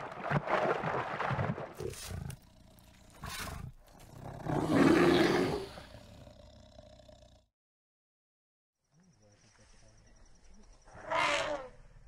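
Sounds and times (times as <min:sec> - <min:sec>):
bear growling: 0:01.8 - 0:07.5.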